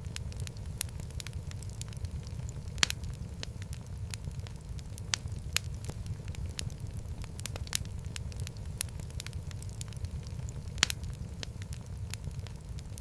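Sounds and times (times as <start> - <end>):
low rumble of flames: 0.0 - 13.0
wood fire crackling and popping: 0.0 - 13.0.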